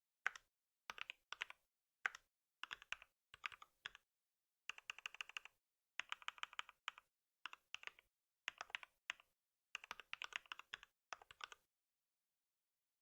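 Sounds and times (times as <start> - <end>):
typing on a computer keyboard: 0.3 - 4.0, 4.7 - 11.6.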